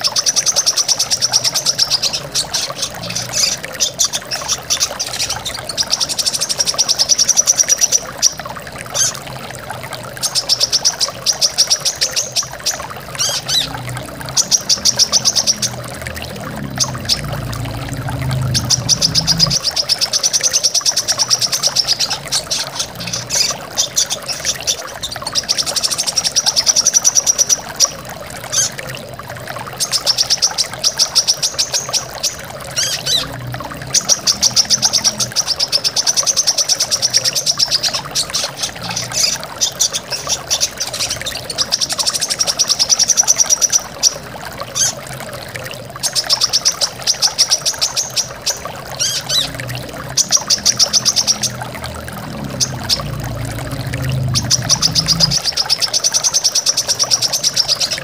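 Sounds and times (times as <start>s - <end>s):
waterfall rushing: 12.2s - 20.3s, 47.9s - 56.0s.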